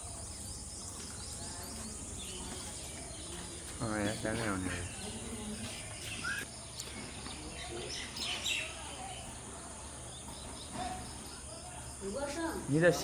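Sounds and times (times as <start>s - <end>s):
bird chirps: 0.0s - 12.1s.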